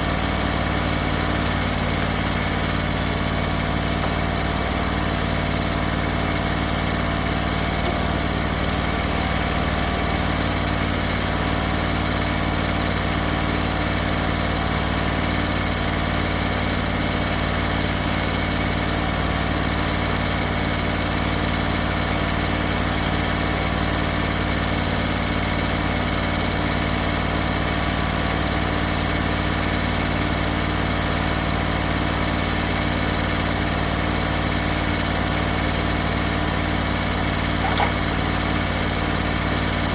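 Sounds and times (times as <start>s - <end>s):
sawmill engine idling: 0.0s - 39.9s.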